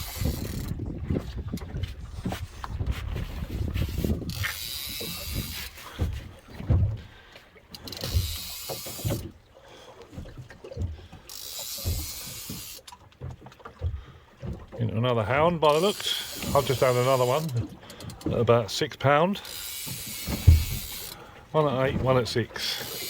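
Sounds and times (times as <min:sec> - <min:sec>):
fishing reel whirring and clicking: 0:00.0 - 0:00.8, 0:03.6 - 0:05.8, 0:07.7 - 0:09.3, 0:11.3 - 0:13.0, 0:19.4 - 0:21.2, 0:22.8 - 0:23.0
low knocks and bumps: 0:05.4 - 0:07.1, 0:20.3 - 0:21.0.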